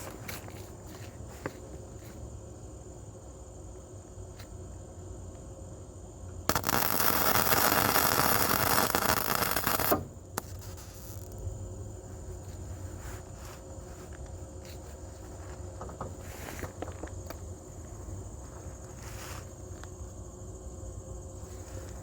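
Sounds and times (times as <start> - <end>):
low steady hum: 0.0 - 22.0
welder arc crackling hiss: 6.4 - 15.3.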